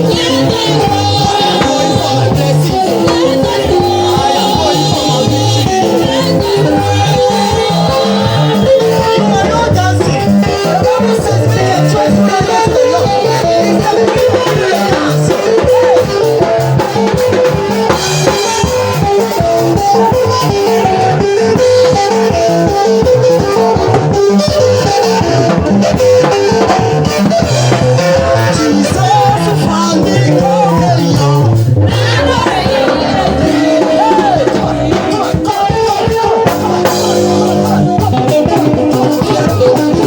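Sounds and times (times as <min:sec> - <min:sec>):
church praise band music: 0:00.0 - 0:40.0.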